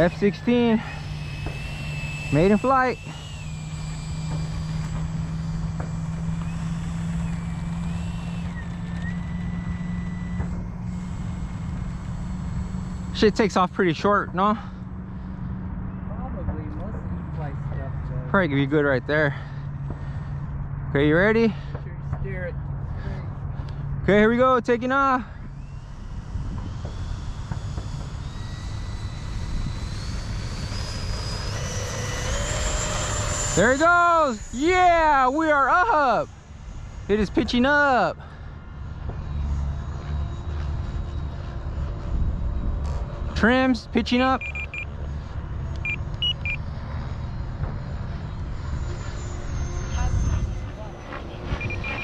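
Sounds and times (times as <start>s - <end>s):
low rushing noise: 0.0s - 19.0s
electric ducted fan whine: 0.0s - 52.0s
low steady hum: 0.0s - 52.0s.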